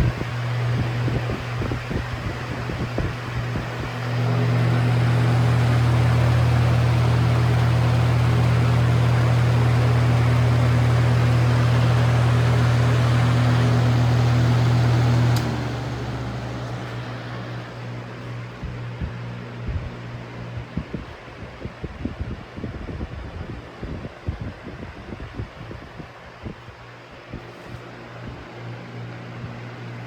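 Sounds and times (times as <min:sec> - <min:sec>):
fan blades rushing: 0:00.0 - 0:30.0
fan motor humming: 0:00.0 - 0:30.0
fan switch click: 0:05.6 - 0:17.7.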